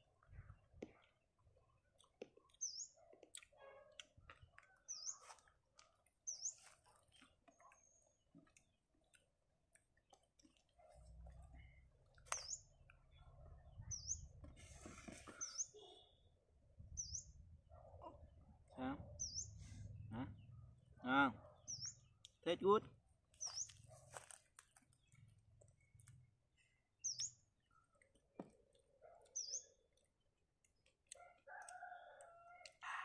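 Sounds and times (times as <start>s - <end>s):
small bird chirping: 2.0s - 3.4s, 4.7s - 5.5s, 6.2s - 9.2s, 11.5s - 14.5s, 15.1s - 18.2s, 21.6s - 22.4s, 23.3s - 24.1s, 24.8s - 27.9s, 29.0s - 30.0s.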